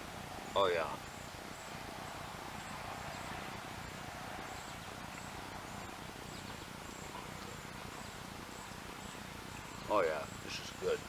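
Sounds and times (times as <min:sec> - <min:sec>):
insect chirping in short pulses: 0:00.4 - 0:11.0.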